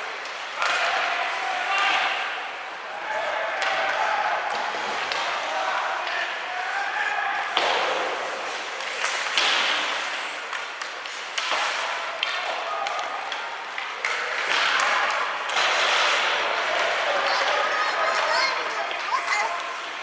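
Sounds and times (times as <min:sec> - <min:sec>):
crowd noise: 0:00.0 - 0:20.0
hockey sticks clacking on puck: 0:00.0 - 0:20.0
skates hissing on ice: 0:06.8 - 0:12.5, 0:15.5 - 0:18.3.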